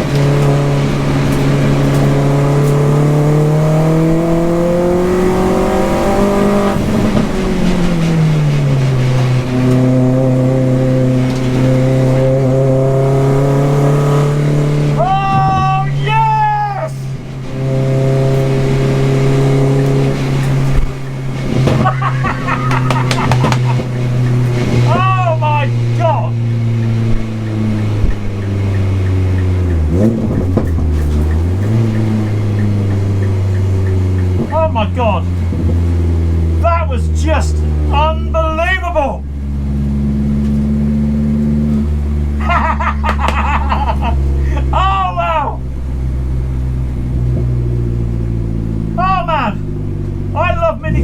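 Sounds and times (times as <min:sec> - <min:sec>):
race car engine running hard: 0:00.0 - 0:51.0
engine rev blip: 0:17.2 - 0:36.7.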